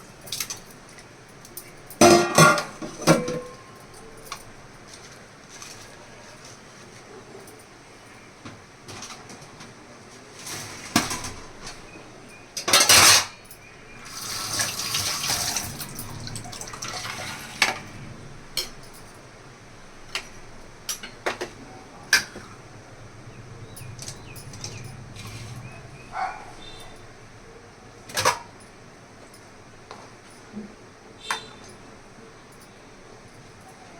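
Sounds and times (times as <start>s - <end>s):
dishes and utensils clinking: 0.1s - 6.6s, 10.4s - 19.1s, 20.0s - 22.7s, 23.6s - 27.2s, 28.1s - 28.6s.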